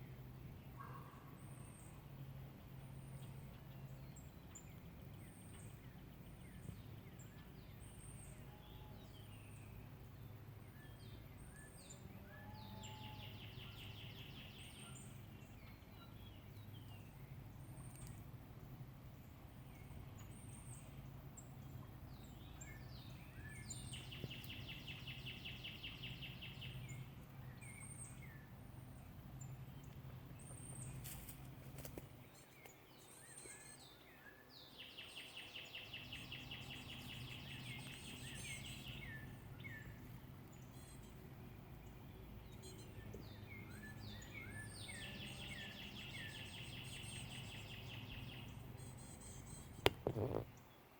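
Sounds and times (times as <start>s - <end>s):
songbird chirps and trill: 2.7s - 50.9s.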